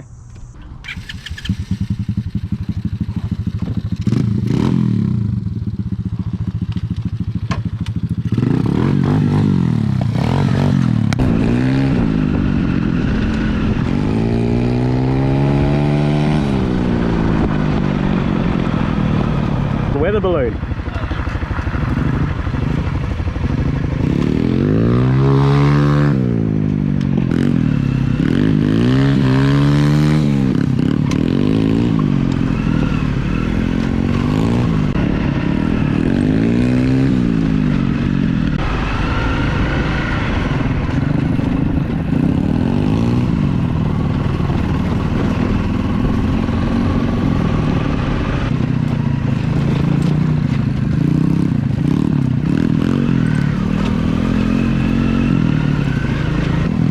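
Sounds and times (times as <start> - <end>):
rattling over rough ground: 0.0 - 4.6, 26.6 - 36.8, 37.5 - 56.9
pit bike engine revving: 0.0 - 56.9.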